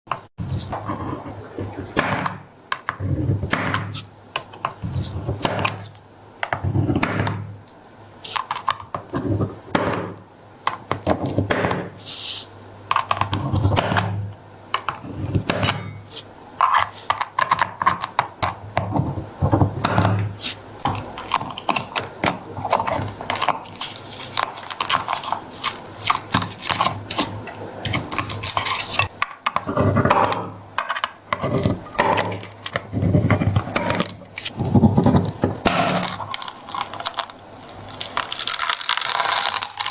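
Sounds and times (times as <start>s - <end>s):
small hard objects clicking: 35.6s - 39.9s.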